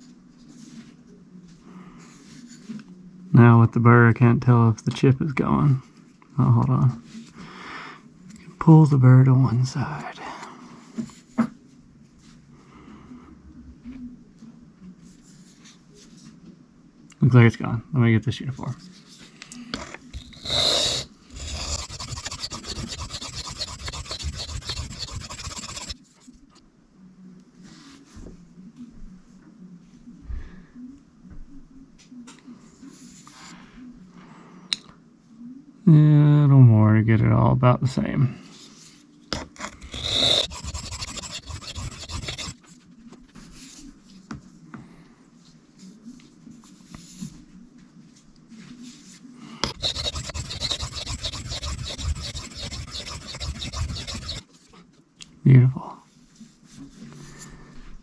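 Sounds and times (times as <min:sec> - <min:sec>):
knife scraping on sharpening stone: 0:20.4 - 0:26.0, 0:39.7 - 0:42.6, 0:49.7 - 0:54.4.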